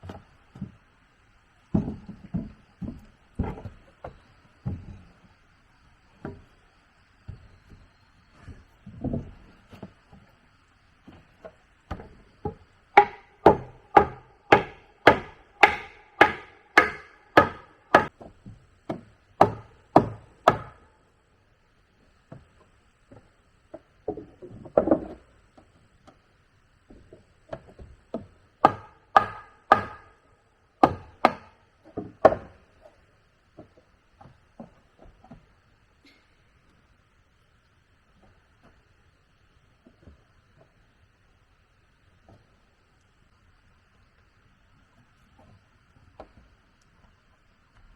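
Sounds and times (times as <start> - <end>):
scattered knocks: 11.9 - 18.1, 27.5 - 30.1
tool striking wood: 11.9 - 18.1, 18.9 - 20.9, 27.5 - 30.2, 30.8 - 32.6.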